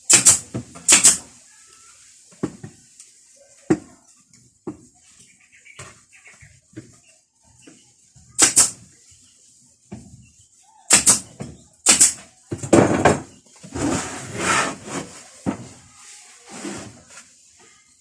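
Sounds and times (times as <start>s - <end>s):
scraping noises: 13.0s - 18.0s.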